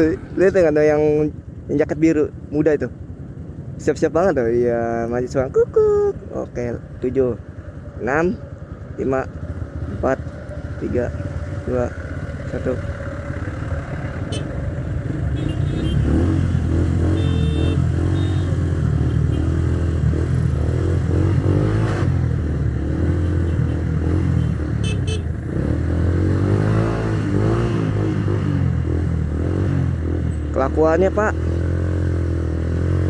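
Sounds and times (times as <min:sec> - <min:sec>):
traffic moving: 0:00.0 - 0:33.0
motorcycle engine revving: 0:06.6 - 0:33.0.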